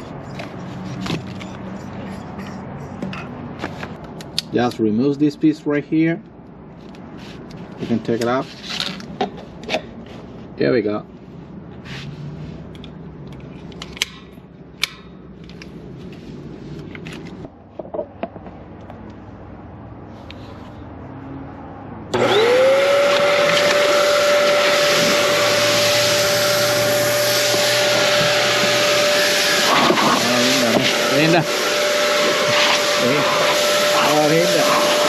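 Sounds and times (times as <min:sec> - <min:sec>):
hair dryer motor whine: 0:22.1 - 0:35.0.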